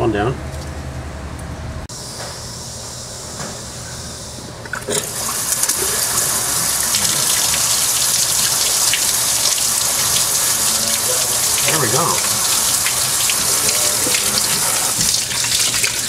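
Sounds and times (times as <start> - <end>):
water gushing and splashing: 4.9 - 16.0.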